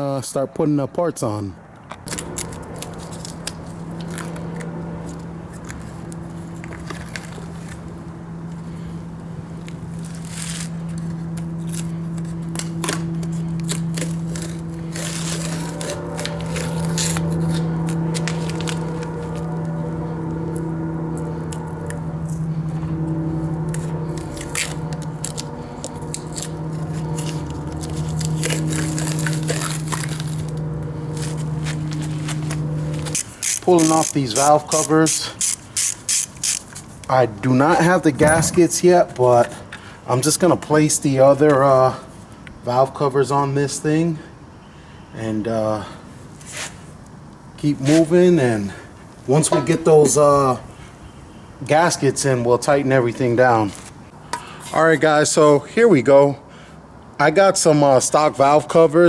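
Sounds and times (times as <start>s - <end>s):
low electrical hum: 1.0s - 59.0s
small engine parts being handled: 23.7s - 37.1s.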